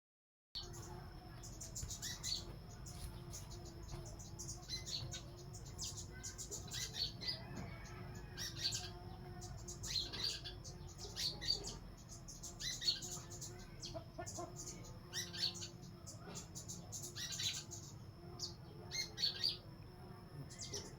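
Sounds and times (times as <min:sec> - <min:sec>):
birds chirping: 0:00.6 - 0:20.9
faint low hum: 0:00.6 - 0:20.9.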